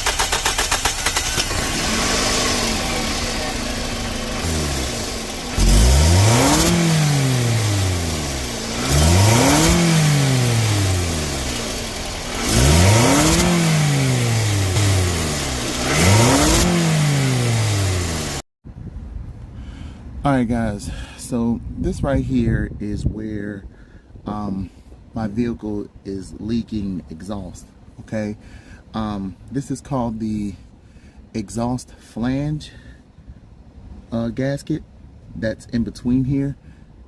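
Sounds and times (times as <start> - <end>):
car engine idling and revving: 0.0 - 18.4
exhaust leak hiss: 0.0 - 18.4.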